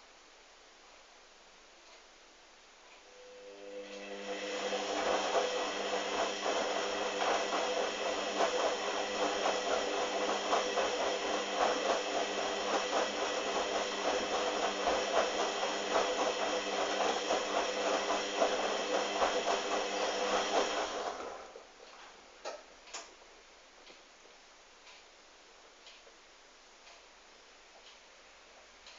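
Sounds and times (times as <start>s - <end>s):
washing machine motor whine: 3.1s - 21.6s.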